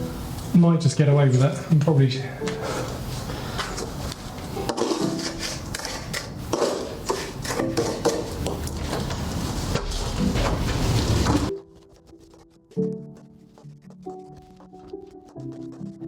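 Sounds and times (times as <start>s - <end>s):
hand tool scraping mortar and stone: 4.7s - 8.4s.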